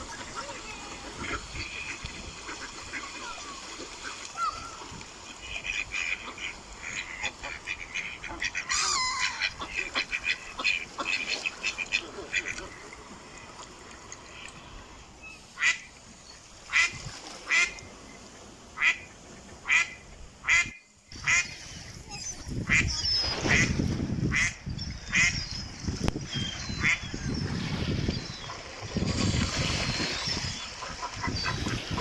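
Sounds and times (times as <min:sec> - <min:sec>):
ducks quacking: 0:00.0 - 0:12.9, 0:18.8 - 0:21.6, 0:22.4 - 0:25.4, 0:26.1 - 0:32.0.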